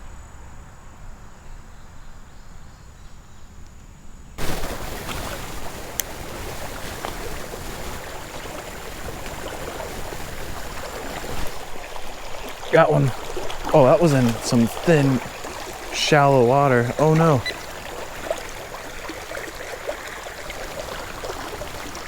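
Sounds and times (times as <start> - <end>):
creek water rushing and splashing: 4.4 - 22.0.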